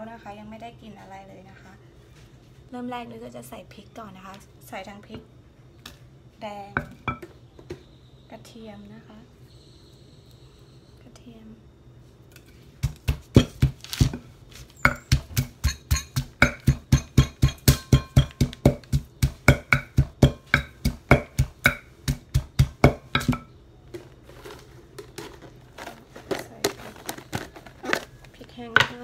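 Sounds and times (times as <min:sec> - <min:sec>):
wooden pestle pounding in mortar: 0:12.8 - 0:14.2, 0:14.8 - 0:23.5.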